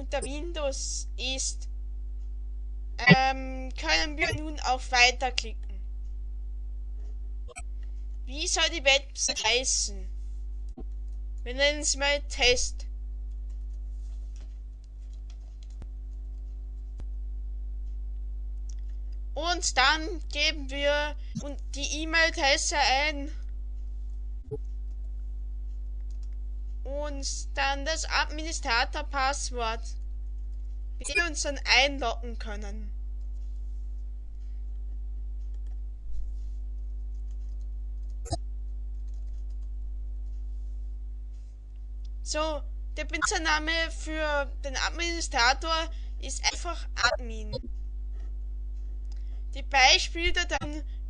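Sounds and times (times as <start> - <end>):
low electrical hum: 0.0 - 51.0
typing on computer keyboard: 15.1 - 15.8, 26.0 - 26.3, 37.1 - 38.2, 38.9 - 39.7
keyboard and mouse clicks: 25.7 - 26.4, 39.0 - 39.7.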